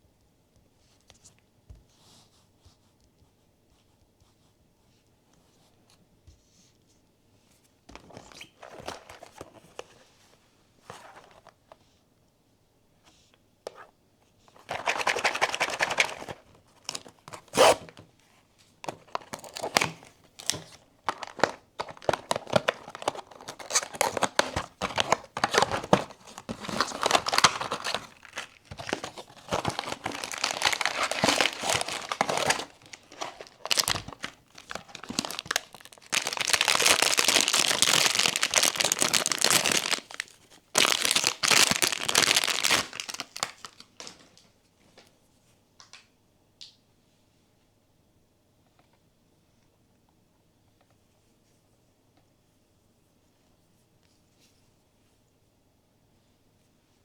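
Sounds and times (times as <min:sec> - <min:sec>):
packaging crinkling and tearing: 0:08.0 - 0:09.8, 0:14.6 - 0:18.0, 0:18.9 - 0:44.4.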